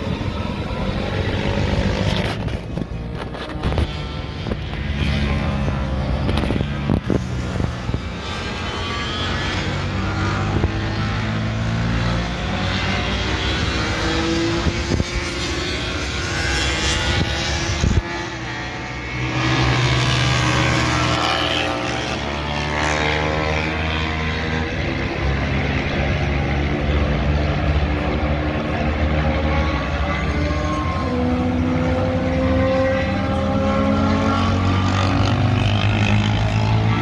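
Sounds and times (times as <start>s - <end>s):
wind noise: 0.0s - 9.5s, 13.5s - 18.5s.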